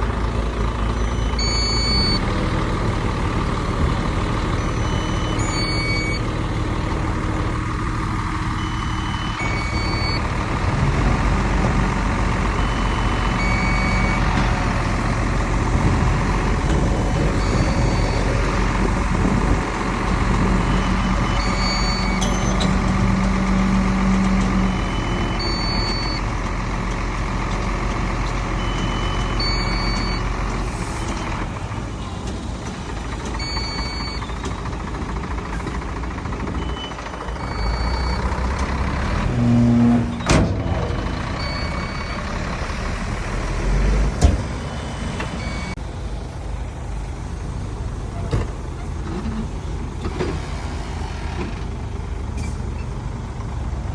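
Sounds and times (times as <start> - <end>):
heavy diesel machinery rumbling: 0.0 - 53.9
warning alarm beeps: 0.9 - 2.2, 4.6 - 6.3, 8.4 - 10.4, 12.4 - 14.4, 17.4 - 18.4, 20.6 - 26.2, 33.4 - 34.5, 41.4 - 42.3.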